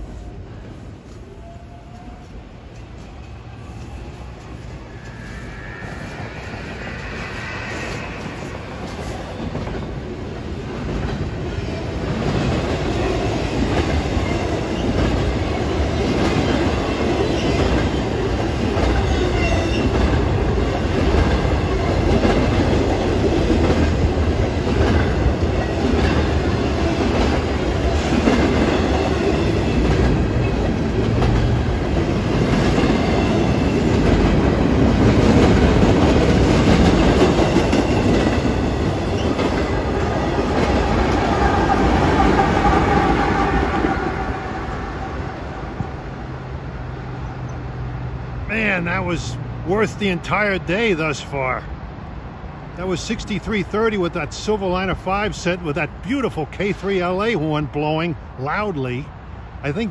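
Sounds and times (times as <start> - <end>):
train wheels clattering over rails: 6.8 - 44.0.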